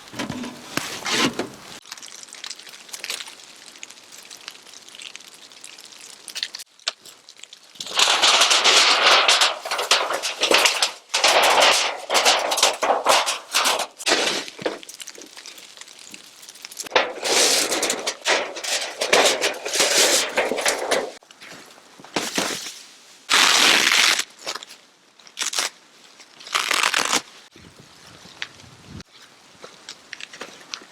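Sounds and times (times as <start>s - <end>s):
tent nylon rustling: 0.0s - 1.8s, 22.2s - 24.7s, 25.4s - 25.7s, 26.4s - 27.3s.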